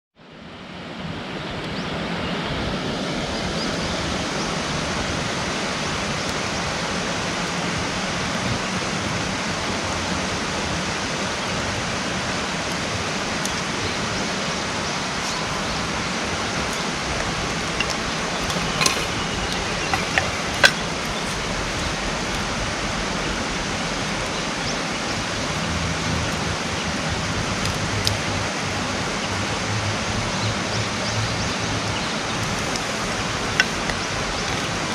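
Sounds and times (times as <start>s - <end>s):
campfire crackling: 11.7s - 28.8s, 31.5s - 34.9s
burning wood popping: 12.6s - 22.8s, 25.2s - 28.3s, 31.6s - 34.9s.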